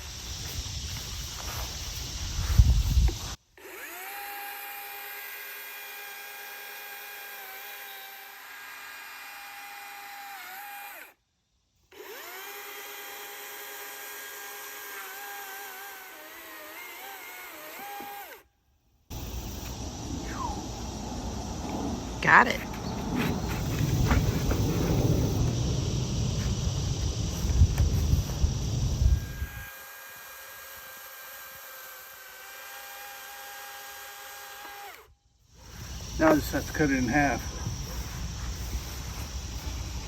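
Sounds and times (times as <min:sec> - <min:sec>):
chainsaw cutting log: 0:02.9 - 0:11.2, 0:11.9 - 0:18.5, 0:19.1 - 0:20.0, 0:23.2 - 0:25.6, 0:29.0 - 0:39.9
loud low rumble: 0:19.8 - 0:28.9.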